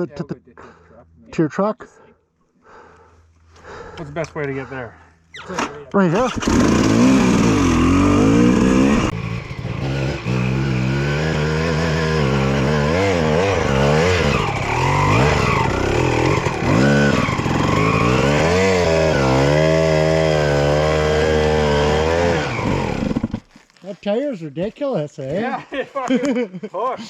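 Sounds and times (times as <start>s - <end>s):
dirt bike engine revving: 6.2s - 23.4s.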